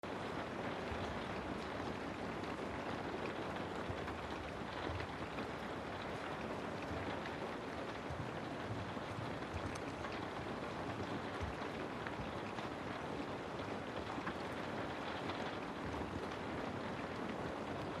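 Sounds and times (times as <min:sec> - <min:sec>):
steady rain hiss: 0:00.1 - 0:18.0.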